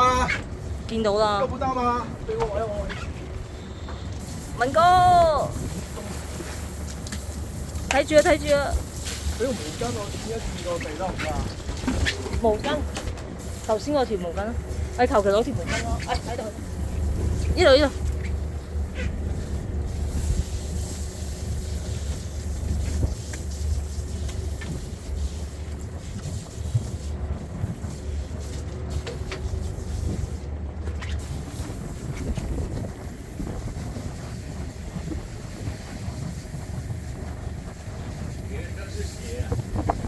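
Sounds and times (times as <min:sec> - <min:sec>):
boat engine droning: 0:00.0 - 0:40.0.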